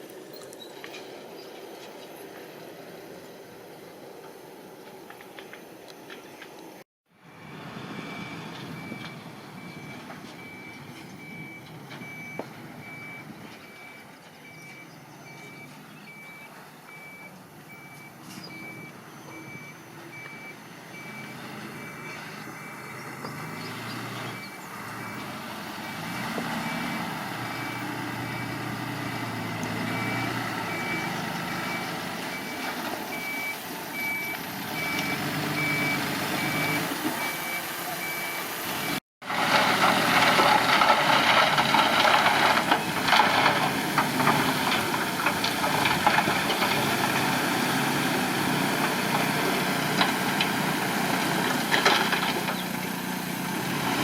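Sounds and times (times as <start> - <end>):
diesel engine: 0.0 - 54.0
backup alarm beeping: 7.3 - 23.6, 29.8 - 39.0.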